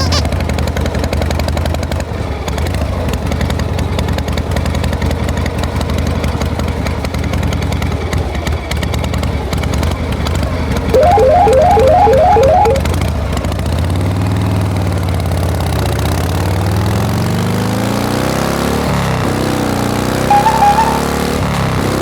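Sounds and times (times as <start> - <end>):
rising electronic beeping: 11.0 - 12.9, 20.3 - 21.3
short high beep: 11.0 - 12.9, 20.3 - 21.3.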